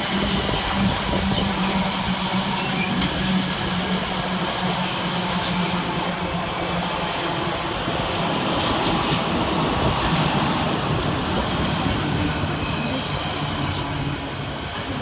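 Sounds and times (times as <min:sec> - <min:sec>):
steady low hum: 0:12.8 - 0:15.0
wheels running on rails: 0:12.8 - 0:15.0.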